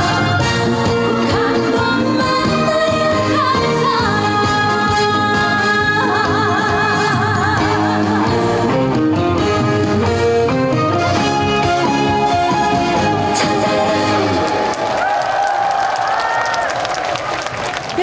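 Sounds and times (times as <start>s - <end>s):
backing band playing: 0.0s - 14.7s
woman singing with vibrato: 1.1s - 9.0s, 13.2s - 14.7s.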